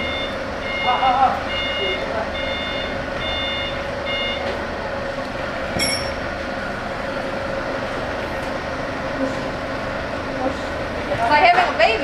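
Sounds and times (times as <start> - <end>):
reversing beeper: 0.0 - 4.5
truck engine running: 0.0 - 12.0
short metallic clink: 5.8 - 6.2.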